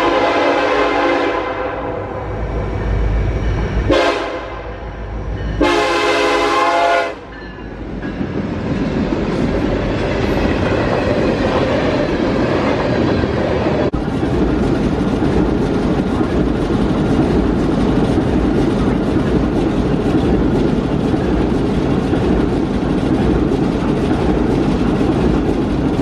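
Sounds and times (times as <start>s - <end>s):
locomotive air horn blasts: 0.0s - 2.1s, 3.9s - 4.8s, 5.6s - 7.3s
train rumble and wheel clatter: 0.0s - 26.0s.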